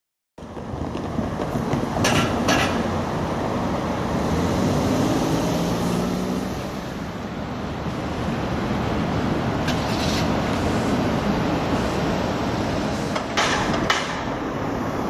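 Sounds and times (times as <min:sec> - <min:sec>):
wheel clacks over rail joints: 0:00.4 - 0:03.1, 0:13.0 - 0:14.5
train rumbling: 0:00.4 - 0:05.1, 0:06.5 - 0:15.0.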